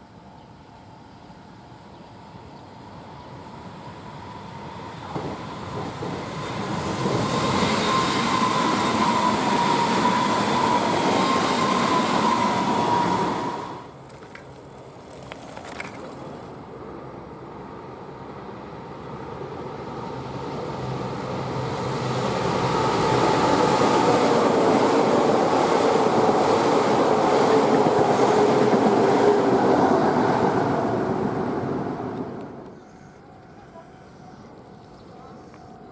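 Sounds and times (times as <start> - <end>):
electric train passing: 0.0 - 14.4, 16.5 - 35.9
train motor whine: 4.2 - 14.0.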